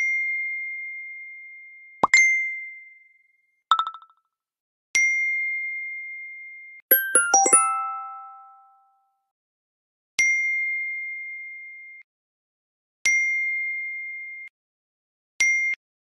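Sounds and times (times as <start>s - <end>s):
phone notification chime: 6.9s - 8.9s.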